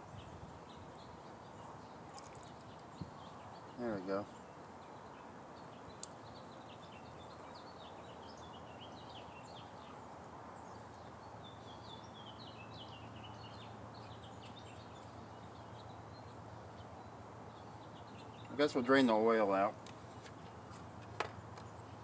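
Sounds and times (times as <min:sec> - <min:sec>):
outdoor background hiss: 0:00.0 - 0:22.0
small birds chirping: 0:00.0 - 0:22.0.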